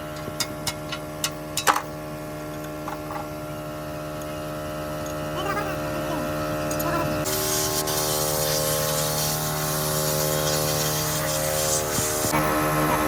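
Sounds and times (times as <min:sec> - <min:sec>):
constant hum: 0:00.0 - 0:13.0
steady hiss: 0:07.3 - 0:12.4.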